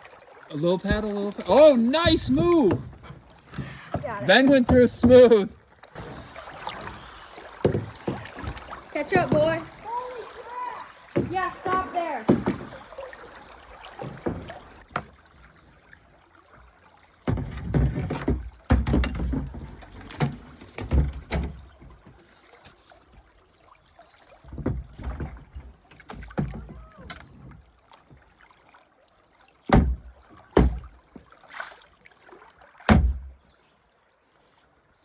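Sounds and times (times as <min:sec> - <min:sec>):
water sloshing: 0:00.0 - 0:33.7
kayak knocking against logs: 0:00.8 - 0:06.3, 0:07.6 - 0:12.9, 0:13.9 - 0:15.2, 0:17.2 - 0:22.2, 0:24.5 - 0:27.5, 0:29.7 - 0:31.3, 0:32.9 - 0:33.4.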